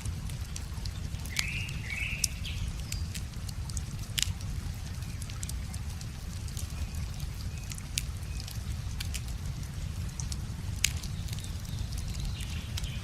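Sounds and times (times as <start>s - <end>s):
river water flowing: 0.0s - 13.0s
wood fire crackling and popping: 0.0s - 13.0s
bird call: 1.3s - 2.4s.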